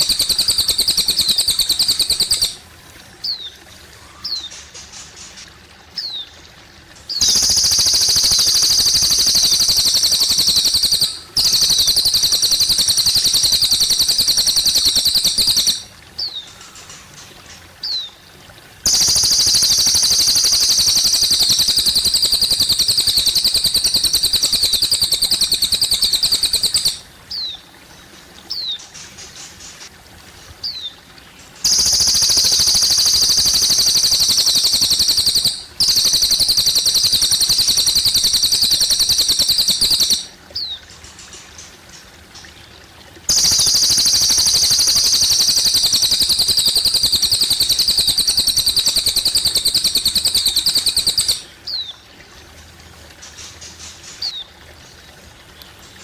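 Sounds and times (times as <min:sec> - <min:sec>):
bird singing pulsing trills: 0:00.0 - 0:02.6, 0:07.1 - 0:17.2, 0:18.9 - 0:27.7, 0:31.6 - 0:40.8, 0:43.3 - 0:52.0
water trickling: 0:00.0 - 0:56.0.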